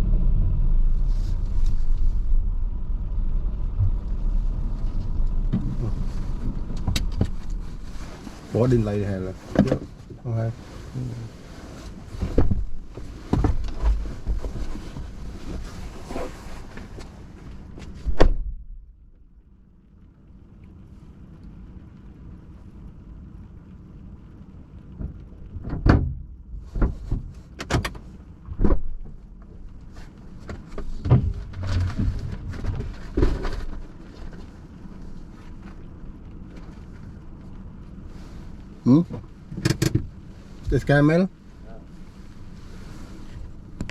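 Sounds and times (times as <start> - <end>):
outside noise hiss: 0.0 - 43.9
knocks and thumps: 12.2 - 14.8, 30.5 - 33.6.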